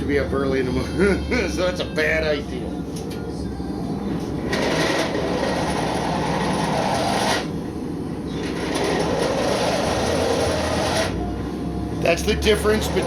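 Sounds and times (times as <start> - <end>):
steady mechanical rumble: 0.0 - 13.0
rushing grinding noise: 4.4 - 7.6, 8.4 - 11.3, 12.3 - 13.0.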